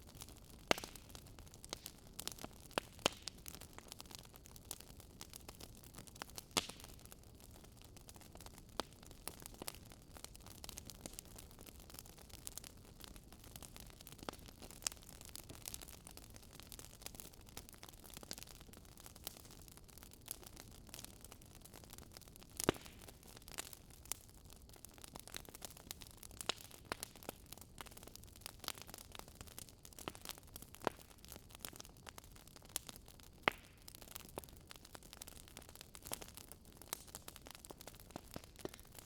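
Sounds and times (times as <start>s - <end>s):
wood fire crackling and popping: 0.0s - 39.0s.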